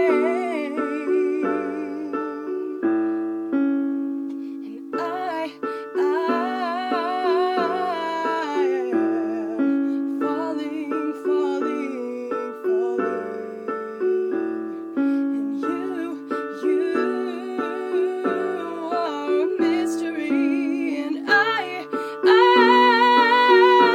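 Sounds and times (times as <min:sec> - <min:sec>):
person singing with vibrato: 0:00.0 - 0:03.4, 0:04.6 - 0:23.9
piano chords: 0:00.0 - 0:23.9.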